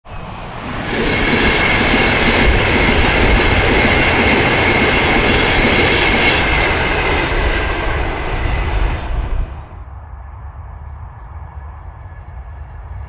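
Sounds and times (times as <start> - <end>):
train rumbling past: 0.1 - 13.0.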